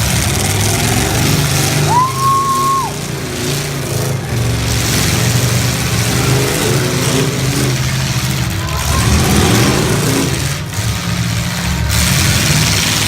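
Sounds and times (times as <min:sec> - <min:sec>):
car engines revving: 0:00.0 - 0:13.0
steady horn tone: 0:08.4 - 0:11.4.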